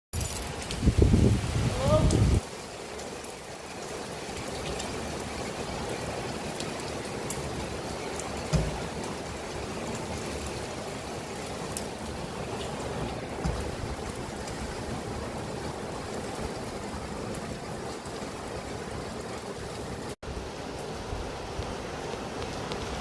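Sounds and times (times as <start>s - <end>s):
steady rain falling: 0.2s - 23.0s
brief thump: 8.5s - 8.8s.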